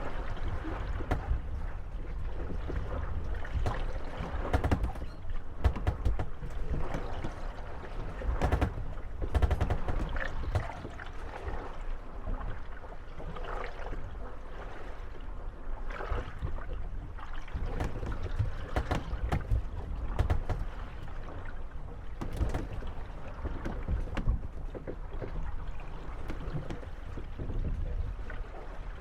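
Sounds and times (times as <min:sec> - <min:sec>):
water lapping: 0:00.0 - 0:29.0
wooden boat hulls knocking: 0:00.5 - 0:11.2, 0:17.5 - 0:25.6, 0:26.3 - 0:28.0.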